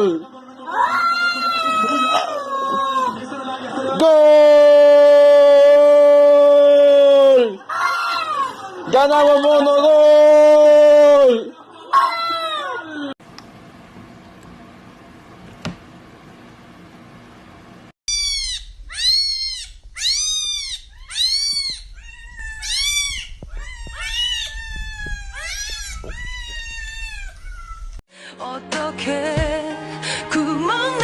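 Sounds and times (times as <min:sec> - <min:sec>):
click: 0:13.3 - 0:13.5
cat meowing: 0:18.1 - 0:28.0.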